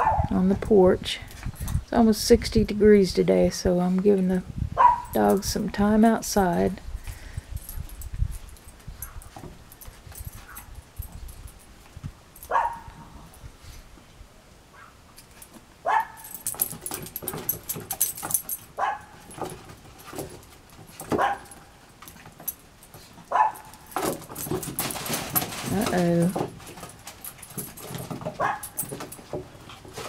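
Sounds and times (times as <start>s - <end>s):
puppies yipping: 21.2s - 21.6s, 23.3s - 23.8s, 28.4s - 28.8s.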